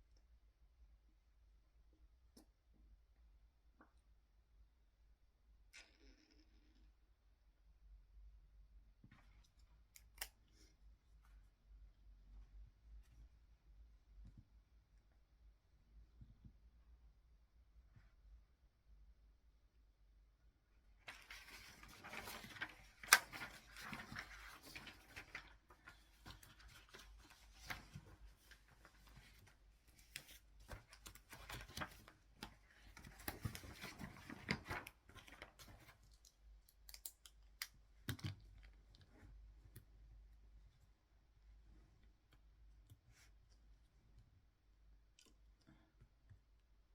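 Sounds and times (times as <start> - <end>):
paper rustling and scraping: 21.1 - 36.0.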